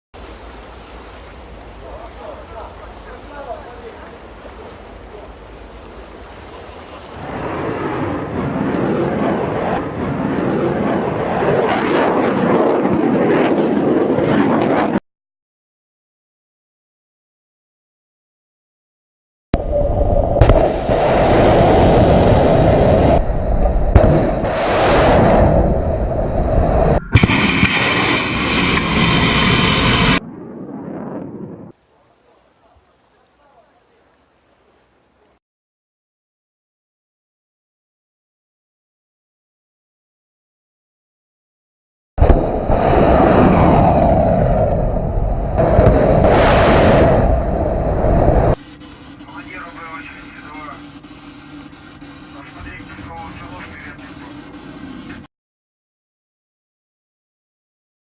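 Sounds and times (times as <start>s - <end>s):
missile launch roar: 7.1s - 15.0s, 19.6s - 31.7s, 42.2s - 48.6s
rocket motor roaring: 19.7s - 30.2s.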